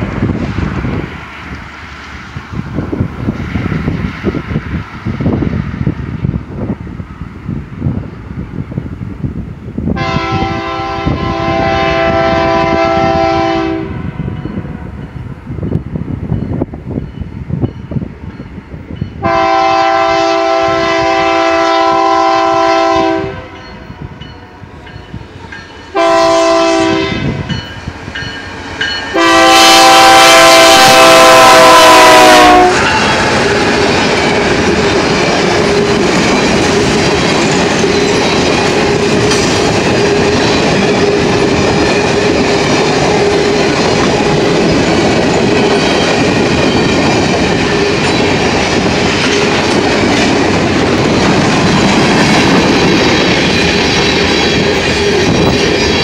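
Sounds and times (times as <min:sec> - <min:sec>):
locomotive air horn blasts: 0:10.0 - 0:14.2, 0:19.2 - 0:23.6, 0:25.9 - 0:27.5, 0:29.2 - 0:33.4
freight cars rumbling and clattering: 0:32.8 - 0:56.0.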